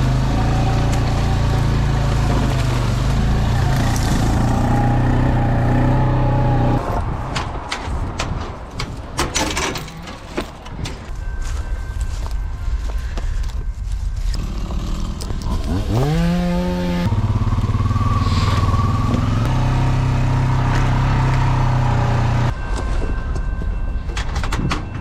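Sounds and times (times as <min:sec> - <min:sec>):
four-wheeler engine revving: 0:00.0 - 0:07.0, 0:14.4 - 0:22.5.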